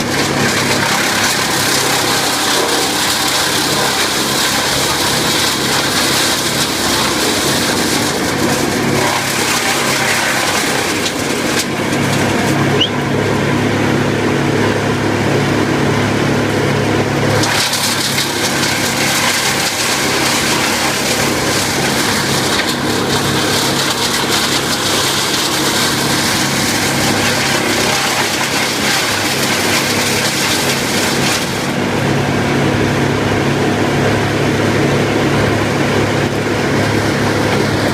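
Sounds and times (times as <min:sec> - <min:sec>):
wood chipper engine drone: 0:00.0 - 0:37.9
grinding hiss of chipping: 0:17.4 - 0:31.8.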